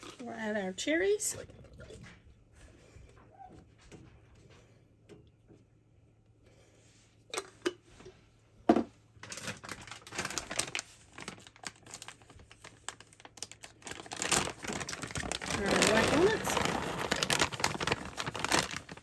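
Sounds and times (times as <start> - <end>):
plastic bag crinkling: 9.2 - 19.0.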